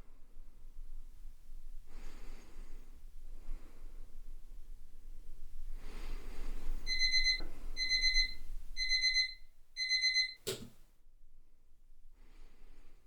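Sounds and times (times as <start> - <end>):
alarm clock beeping: 6.9 - 10.5
sharp click: 10.4 - 10.7.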